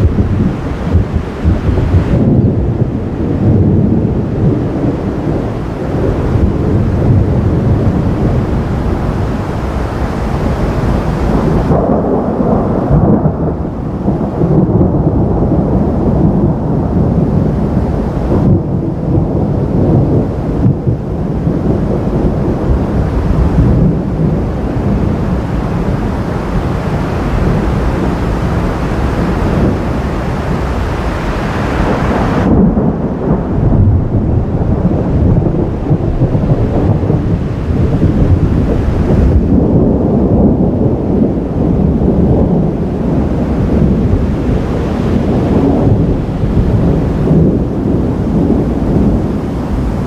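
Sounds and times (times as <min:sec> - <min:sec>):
rolling thunder rumble: 0:00.0 - 0:50.0.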